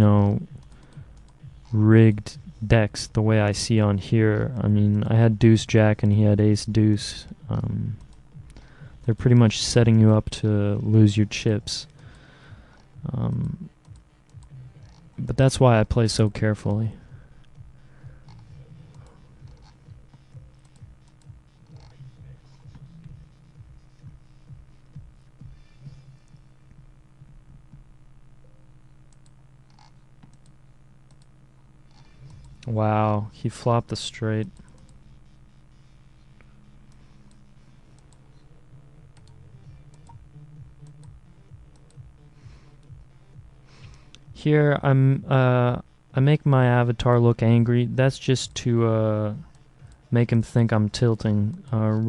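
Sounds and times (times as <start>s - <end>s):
steady low hum: 0.0s - 52.0s
soft low thumps: 7.2s - 10.2s, 16.9s - 29.4s, 38.0s - 44.8s
computer mouse and key clicks: 18.3s - 22.0s, 29.1s - 31.3s.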